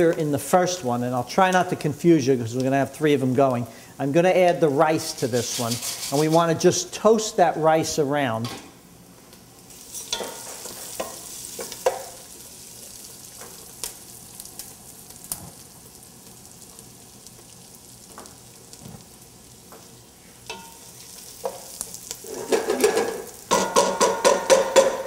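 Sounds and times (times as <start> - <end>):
rice and onion sizzling in oil: 4.6 - 6.6, 9.4 - 25.0
spoon knocking against pot: 22.5 - 25.0.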